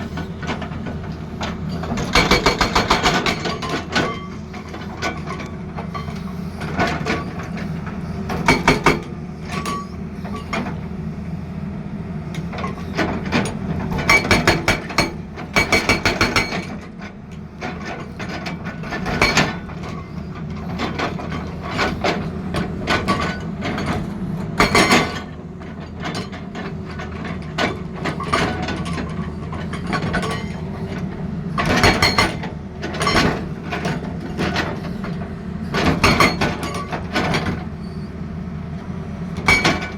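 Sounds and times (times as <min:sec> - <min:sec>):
hydraulic breaker hammering: 0:02.0 - 0:04.2, 0:14.0 - 0:16.7.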